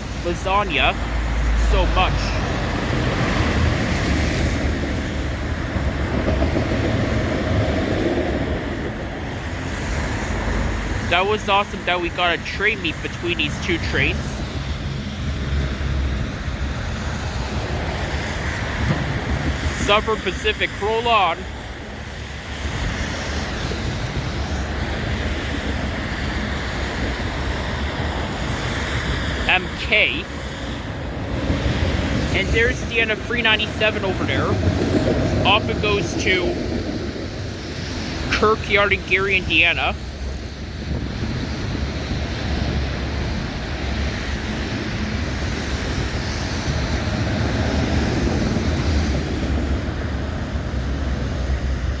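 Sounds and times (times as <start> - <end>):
train wheels rumbling on rail: 0.0 - 20.8, 21.4 - 38.4, 40.0 - 52.0
wind buffeting microphone: 1.0 - 11.1, 30.3 - 32.7, 33.8 - 38.3, 40.0 - 52.0.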